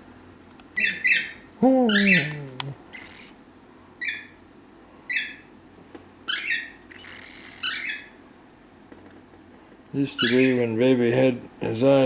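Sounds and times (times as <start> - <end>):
pet bird high calls: 0.7 - 3.4, 4.0 - 4.4, 5.1 - 5.5, 6.3 - 8.2, 10.2 - 10.6.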